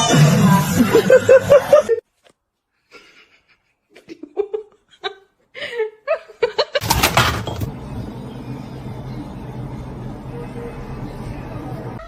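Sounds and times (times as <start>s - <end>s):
person laughing: 0.8s - 2.0s.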